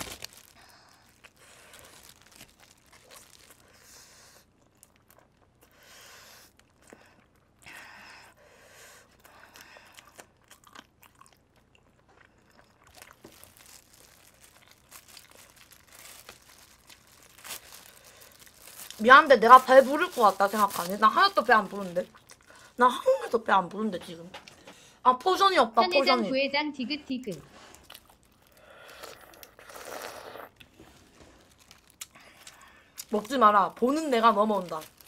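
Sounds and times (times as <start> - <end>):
chewing and crunching chicken: 0.0 - 8.4, 9.0 - 22.8, 27.6 - 35.0
biting clicks and mouth sounds: 27.8 - 30.8, 31.9 - 33.3.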